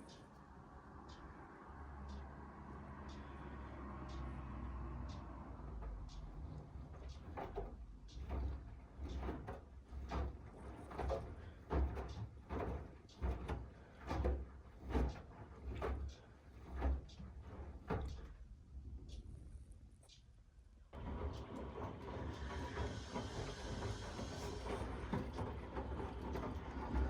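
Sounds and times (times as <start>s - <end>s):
washing machine drum turning: 5.9s - 18.4s, 21.0s - 27.0s
low motor hum: 20.9s - 27.0s.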